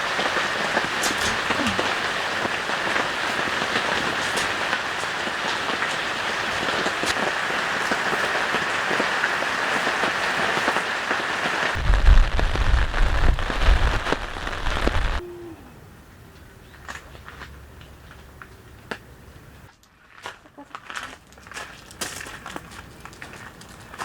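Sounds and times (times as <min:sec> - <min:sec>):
heavy rain on a tent: 0:00.0 - 0:15.2
deep low rumble: 0:11.8 - 0:15.2.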